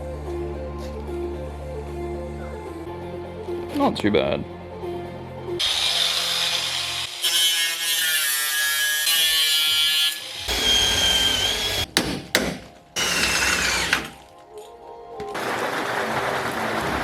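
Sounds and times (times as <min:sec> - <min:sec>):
power tool whining on metal: 0:05.6 - 0:11.9, 0:13.0 - 0:14.2.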